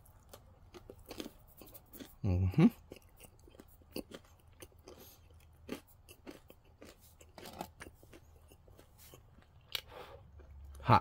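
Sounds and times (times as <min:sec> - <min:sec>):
faint chewing crunches: 0:00.0 - 0:10.9.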